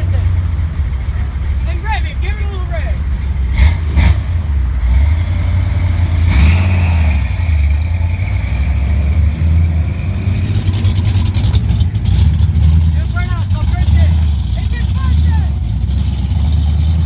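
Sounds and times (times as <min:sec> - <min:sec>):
high steady tyre squeal: 0:00.0 - 0:17.0
car engine revving hard: 0:03.3 - 0:17.0.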